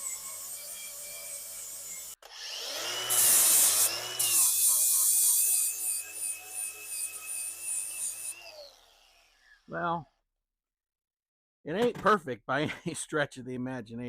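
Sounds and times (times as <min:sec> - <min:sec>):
power tool grinding metal: 0:00.0 - 0:09.7
power tool high whine: 0:00.0 - 0:09.7.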